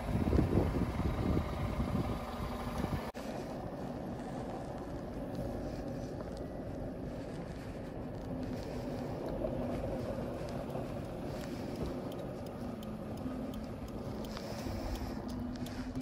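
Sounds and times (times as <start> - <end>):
car engine idling: 0.0 - 16.0
light ticks: 8.1 - 16.0.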